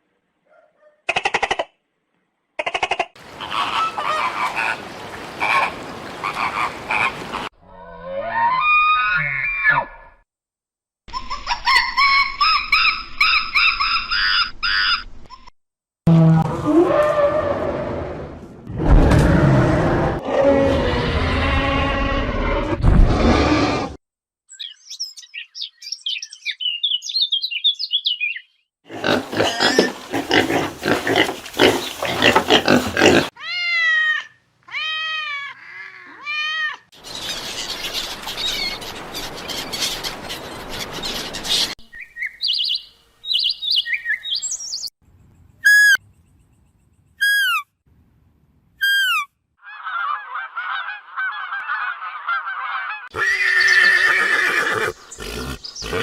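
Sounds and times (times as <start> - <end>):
repeated pitched animal calls: 2.6 - 10.2, 28.9 - 36.8, 48.8 - 56.0
harsh noisy animal calls: 3.2 - 10.0, 28.9 - 33.6, 49.0 - 56.0
high bird chirps: 24.5 - 28.6, 41.5 - 45.0.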